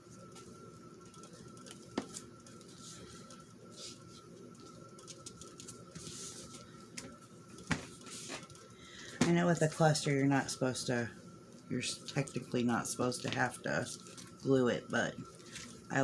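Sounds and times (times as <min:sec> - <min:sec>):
paper rustling: 0:01.2 - 0:08.6, 0:15.2 - 0:15.9.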